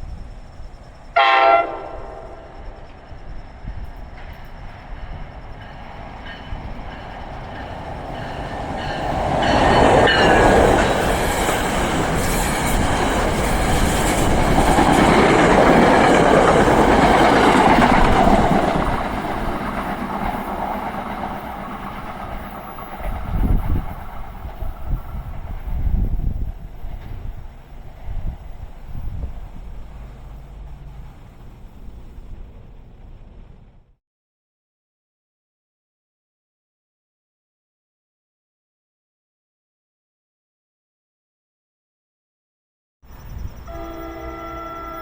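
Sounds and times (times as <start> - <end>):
train wheels clattering on rails: 2.2 - 33.2.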